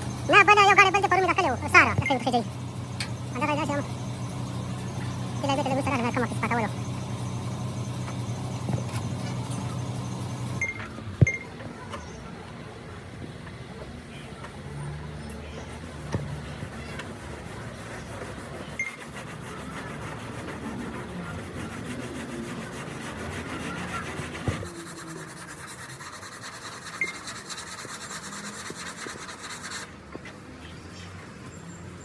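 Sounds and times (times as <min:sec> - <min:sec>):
rasping rubbing on a surface: 0:16.7 - 0:29.9.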